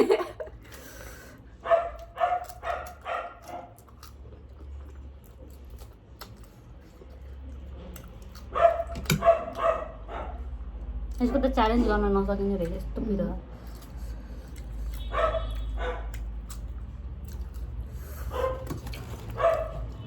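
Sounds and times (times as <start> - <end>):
dog barking: 1.6 - 3.8, 8.5 - 10.5, 15.0 - 16.2, 18.3 - 18.7, 19.3 - 20.0.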